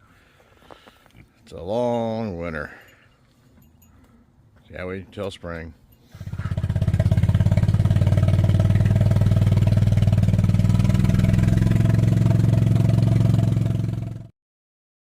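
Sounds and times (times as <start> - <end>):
engine running with rapid pulse: 6.2 - 14.3.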